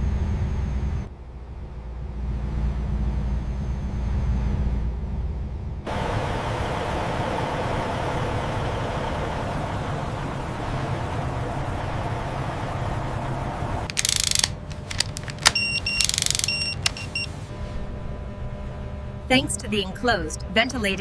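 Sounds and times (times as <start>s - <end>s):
mechanical running noise: 0.3s - 19.2s
sharp clicks: 13.9s - 17.3s
electronic beeps: 15.4s - 17.3s.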